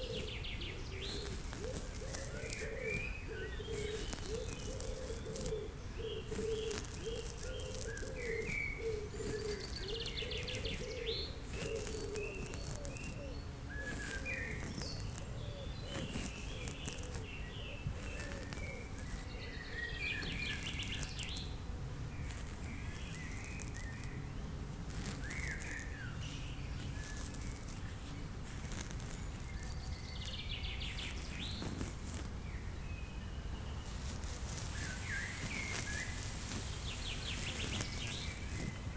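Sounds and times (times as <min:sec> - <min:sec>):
dove cooing: 0:00.0 - 0:19.2
low background noise: 0:00.0 - 0:38.9
small birds chirping: 0:00.0 - 0:38.9.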